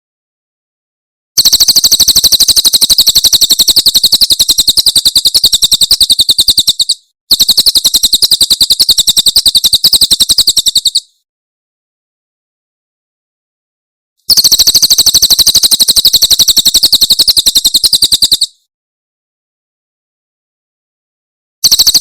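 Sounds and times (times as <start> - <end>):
bird singing rapid high notes: 1.9 - 11.1.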